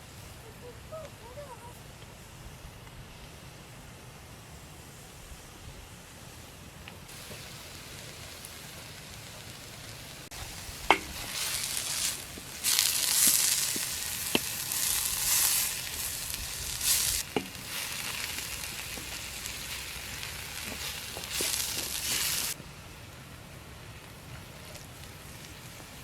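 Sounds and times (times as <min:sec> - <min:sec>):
food sizzling in a pan: 0:07.1 - 0:22.6.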